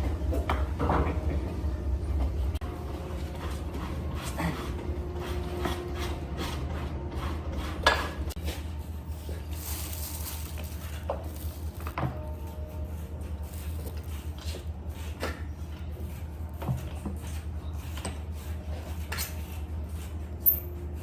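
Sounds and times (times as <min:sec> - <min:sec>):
tools and wood clinking: 0:20.4 - 0:21.0.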